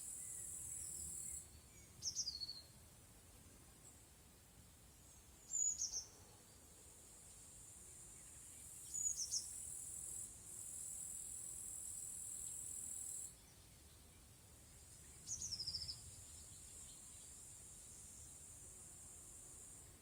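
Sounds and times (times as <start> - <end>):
small bird chirping: 0.1 - 2.7, 5.5 - 6.2, 8.2 - 9.6, 14.8 - 17.4.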